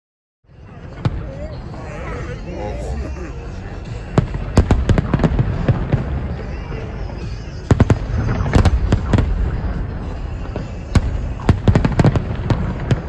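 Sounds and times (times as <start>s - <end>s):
low rumble of fireworks: 0.5s - 1.9s, 2.7s - 13.0s
fireworks bangs: 3.8s - 13.0s.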